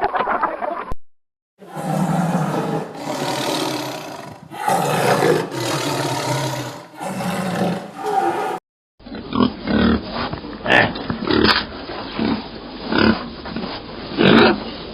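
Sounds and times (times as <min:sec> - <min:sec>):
large animal roaring: 0:01.6 - 0:08.6.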